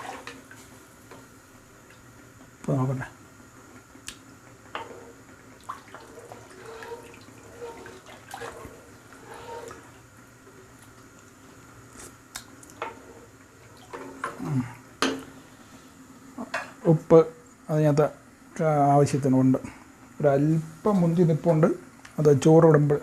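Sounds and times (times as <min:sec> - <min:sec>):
water stirred in a pot: 0:00.0 - 0:00.6, 0:04.6 - 0:14.4.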